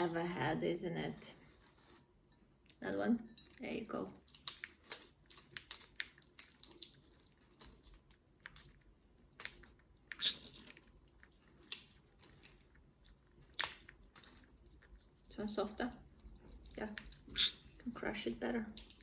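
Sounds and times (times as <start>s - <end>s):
parrot cracking nut shell: 4.2s - 15.0s, 18.8s - 19.0s.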